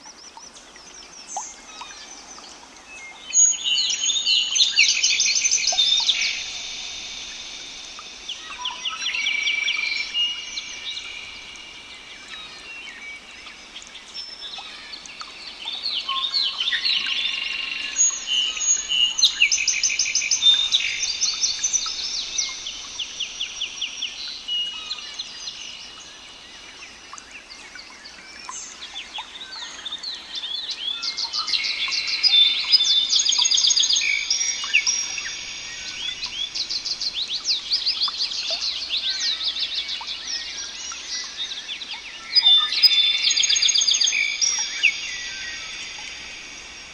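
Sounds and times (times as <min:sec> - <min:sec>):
songbirds singing: 0:00.0 - 0:46.9.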